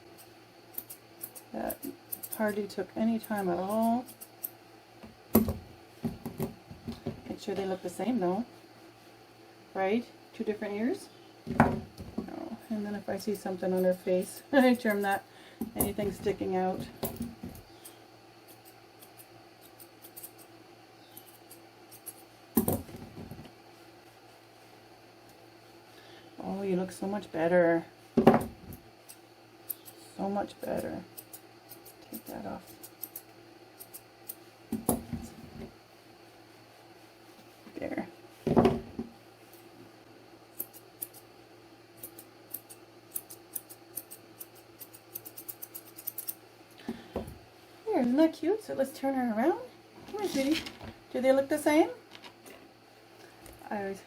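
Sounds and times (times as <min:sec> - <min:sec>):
scissors snipping hair: 0:00.2 - 0:04.6, 0:17.8 - 0:20.5, 0:21.1 - 0:22.3, 0:30.7 - 0:34.4, 0:40.6 - 0:41.3, 0:42.0 - 0:46.4.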